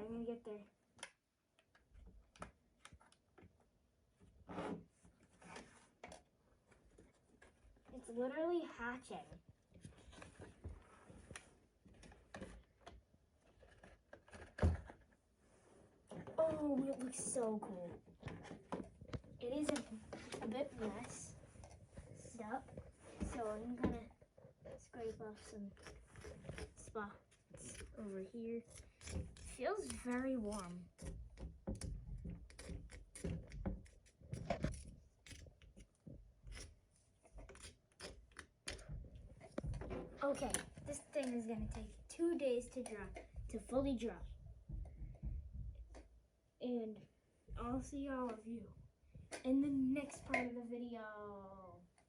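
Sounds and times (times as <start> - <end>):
plaster cracking and scraping: 22.7 - 41.7.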